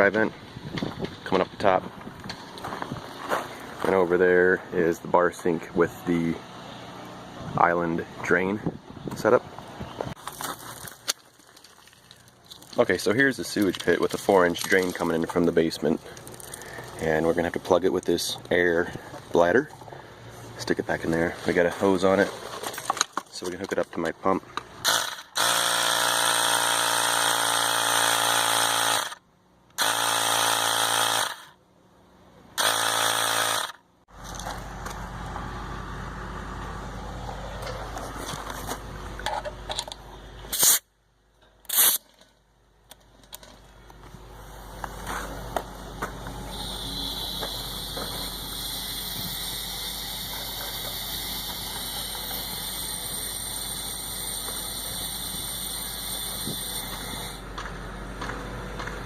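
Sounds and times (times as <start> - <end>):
electric air pump running: 24.8 - 29.2, 29.8 - 31.6, 32.6 - 33.8, 44.4 - 57.6.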